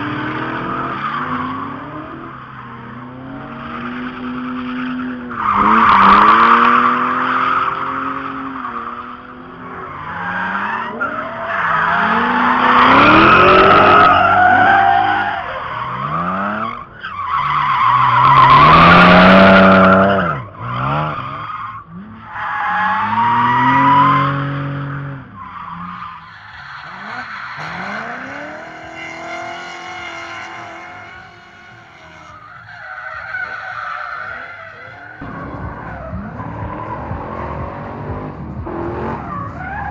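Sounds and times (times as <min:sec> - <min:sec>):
car engines revving: 0:00.0 - 0:39.9
tyres squealing: 0:25.4 - 0:37.0.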